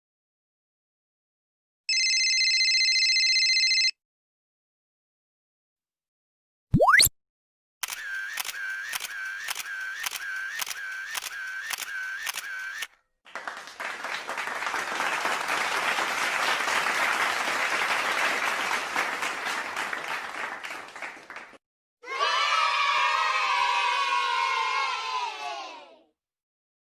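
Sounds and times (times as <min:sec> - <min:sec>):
camera shutter clicking: 0:07.8 - 0:12.9
applause: 0:13.2 - 0:21.6.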